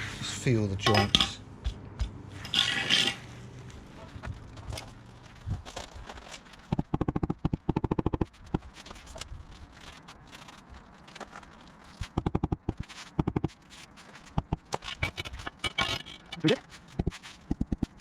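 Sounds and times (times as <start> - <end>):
rapid knocking: 6.7 - 8.7, 12.0 - 13.6, 14.4 - 16.0, 17.0 - 18.0.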